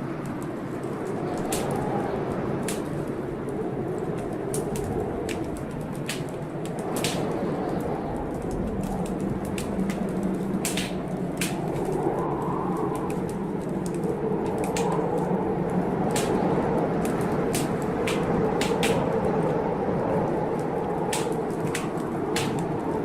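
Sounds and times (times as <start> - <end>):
blizzard wind blowing: 0.0 - 23.0
wood fire crackling: 0.0 - 23.0.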